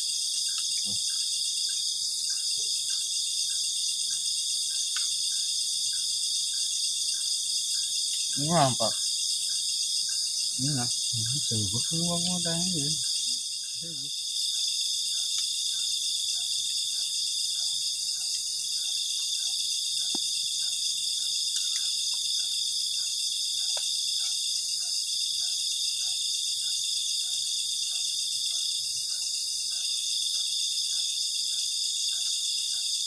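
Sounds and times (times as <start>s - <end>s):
crickets trilling: 0.0s - 33.0s
faint repeating insect call: 0.0s - 33.0s
faint ticks: 0.4s - 8.4s, 14.5s - 33.0s.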